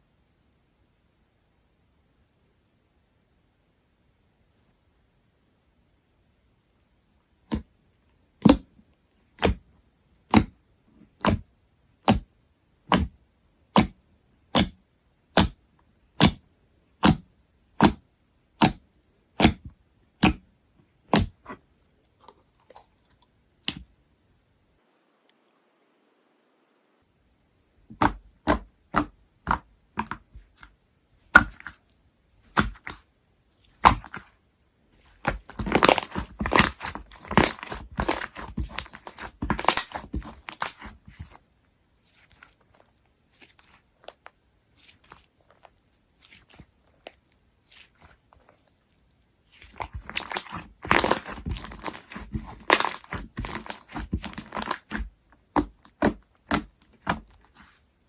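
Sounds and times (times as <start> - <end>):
slime clicking and crackling: 35.1 - 41.3, 49.5 - 57.7.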